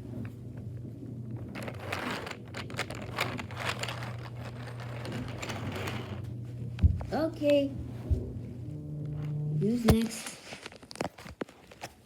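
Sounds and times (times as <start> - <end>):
steady low hum: 0.0 - 10.9
plastic toys clicking and rattling: 1.5 - 6.2.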